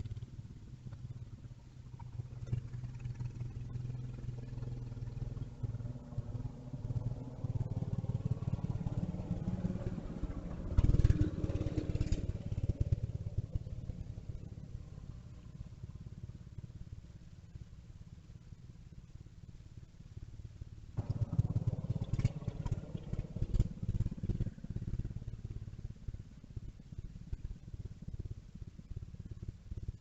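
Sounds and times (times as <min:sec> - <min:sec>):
mini bike engine running: 0:02.0 - 0:15.2, 0:21.0 - 0:29.9.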